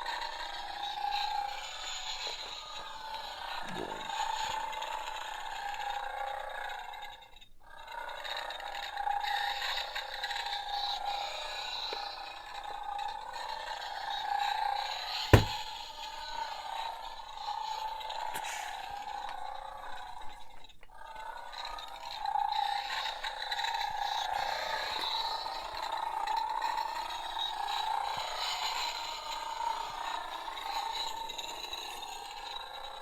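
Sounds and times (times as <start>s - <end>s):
sharp knock: 15.4s - 15.6s.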